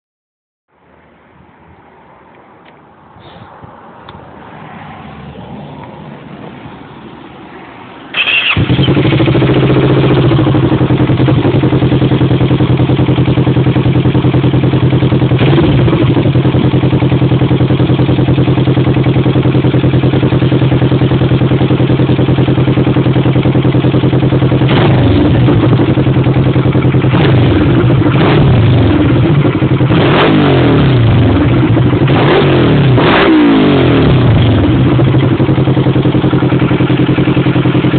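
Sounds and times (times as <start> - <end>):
engine throttle blips: 8.1 - 37.9
motorcycle engine idling: 8.1 - 37.9.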